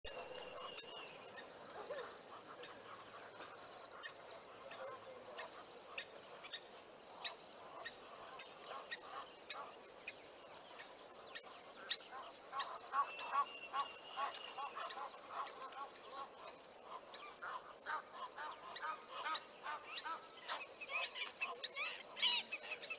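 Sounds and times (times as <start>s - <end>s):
birds chirping: 0.1s - 22.9s
birds honking: 11.4s - 22.9s.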